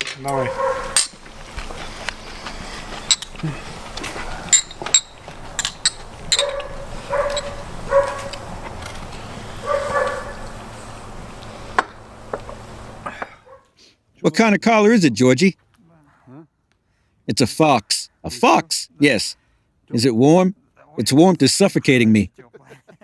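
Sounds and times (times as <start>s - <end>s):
dog barking: 0.3s - 1.0s, 6.3s - 8.5s, 9.6s - 10.6s, 13.4s - 13.7s
sharp clicks and knocks: 3.0s - 9.2s.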